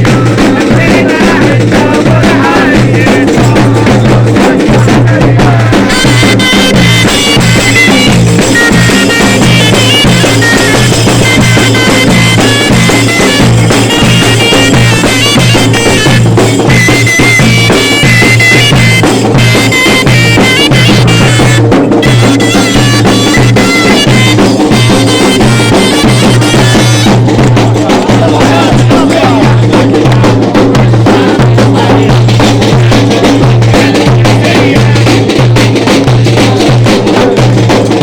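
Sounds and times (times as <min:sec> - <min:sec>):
drums beating: 0:00.0 - 0:38.0
bagpipes playing: 0:05.7 - 0:27.3.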